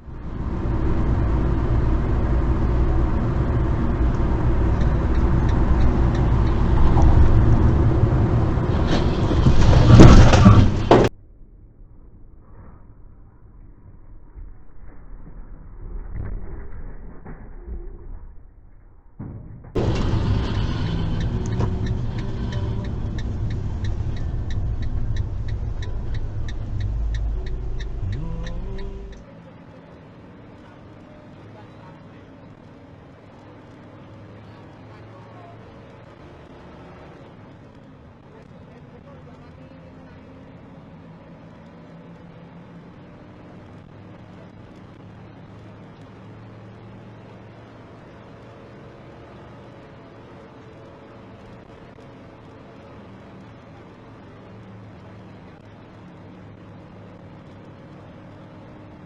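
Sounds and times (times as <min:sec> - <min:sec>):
car engine and road rumble: 0:00.0 - 0:59.0
regular ticking: 0:03.6 - 0:07.4, 0:21.0 - 0:29.3.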